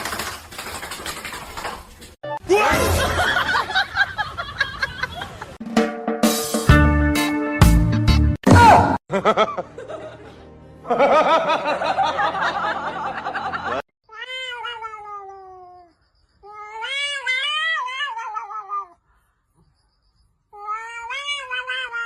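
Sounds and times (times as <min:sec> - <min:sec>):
cat yowling: 0:14.1 - 0:19.0, 0:20.5 - 0:22.0.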